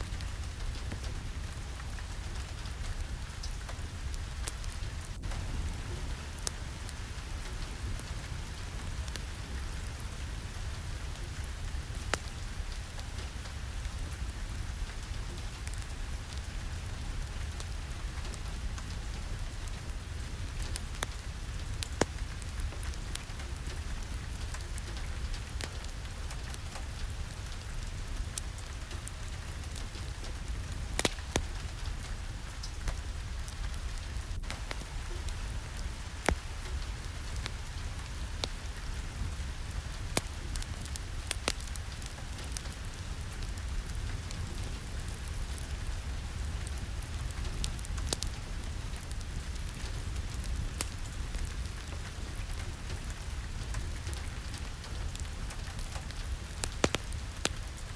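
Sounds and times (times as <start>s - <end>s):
steady rain: 0.0s - 57.9s
sharp ticks and pops: 20.5s - 57.8s.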